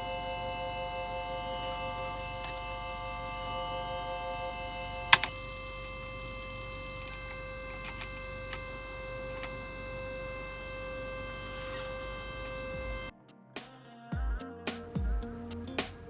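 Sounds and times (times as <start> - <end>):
electronic synth chord: 0.0 - 13.1
sharp click: 5.0 - 5.5.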